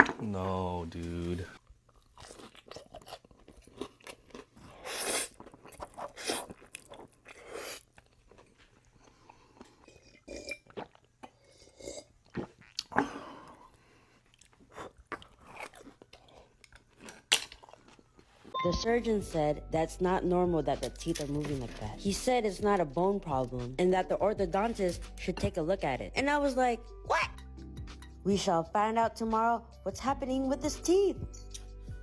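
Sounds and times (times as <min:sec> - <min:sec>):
person crunching and chewing: 0:01.9 - 0:13.0, 0:14.1 - 0:18.3.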